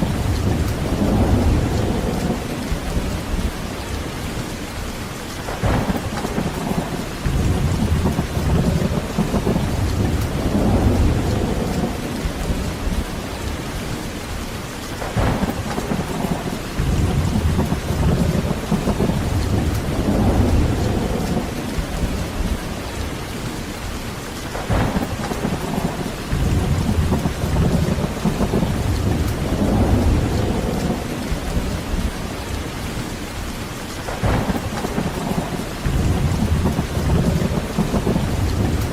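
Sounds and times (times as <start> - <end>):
rolling thunder: 0.0 - 4.2, 5.5 - 14.0, 15.0 - 23.6, 24.4 - 33.0, 34.0 - 38.9
heavy rain: 0.0 - 38.9
thunder crack: 5.5 - 12.6, 15.0 - 22.5, 24.5 - 32.1, 34.1 - 38.9.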